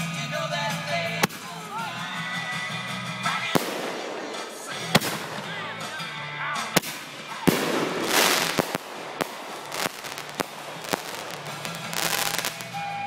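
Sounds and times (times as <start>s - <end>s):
sharp firework pops: 1.2s - 1.5s, 3.6s - 5.6s, 6.8s - 12.8s
crackling firework hiss: 3.4s - 5.8s, 6.7s - 13.0s
firework bang: 3.6s - 5.7s, 6.8s - 12.8s.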